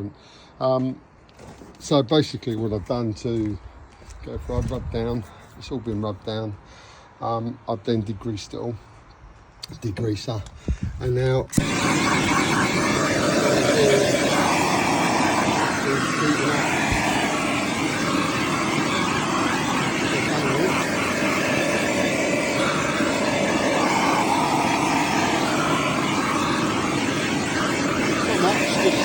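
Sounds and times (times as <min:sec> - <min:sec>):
mechanical whirring: 0:11.5 - 0:29.0.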